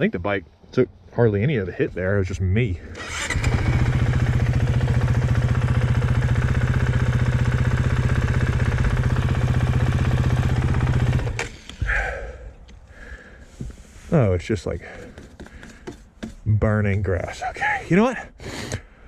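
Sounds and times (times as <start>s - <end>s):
motorcycle engine idling: 2.9s - 12.2s.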